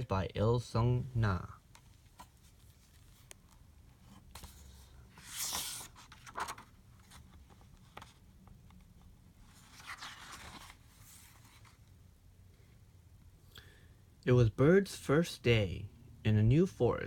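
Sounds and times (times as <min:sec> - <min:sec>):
paper page rustling: 0:02.1 - 0:08.8, 0:09.4 - 0:11.8.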